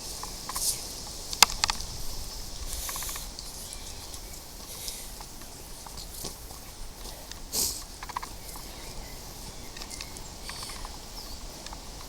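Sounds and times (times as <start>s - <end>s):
footsteps on a path: 2.8s - 11.1s.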